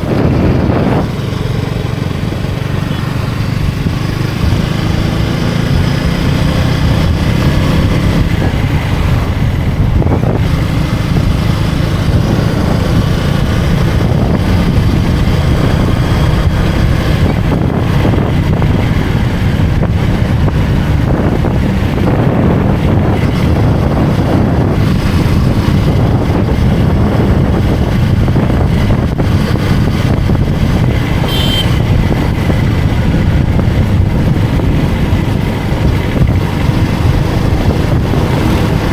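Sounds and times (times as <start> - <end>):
motorcycle engine running: 0.0 - 38.9
wind noise on microphone: 0.0 - 38.9
short high tone: 31.3 - 31.8.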